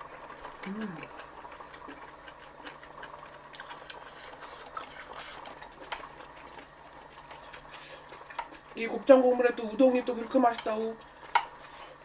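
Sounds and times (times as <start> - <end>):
chewing: 0.1 - 8.8.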